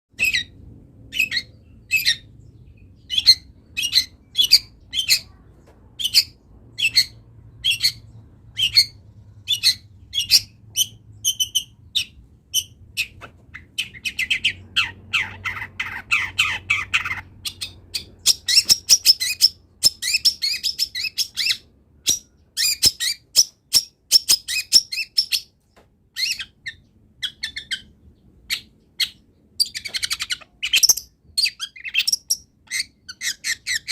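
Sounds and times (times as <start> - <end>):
bird singing sharp calls: 0.2 - 25.5.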